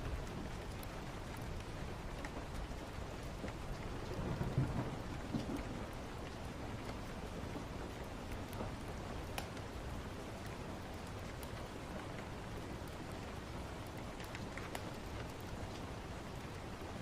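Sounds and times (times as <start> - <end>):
steady rain: 0.0 - 17.0
distant thunder rumble: 3.9 - 7.9
small ticks: 10.4 - 16.7.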